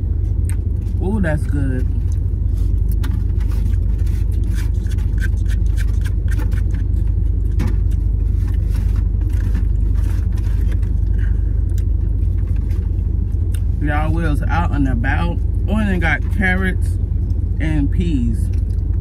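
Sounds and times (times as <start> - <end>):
car cabin rumble: 0.0 - 19.0
clicks and scrapes of eating: 2.0 - 12.8.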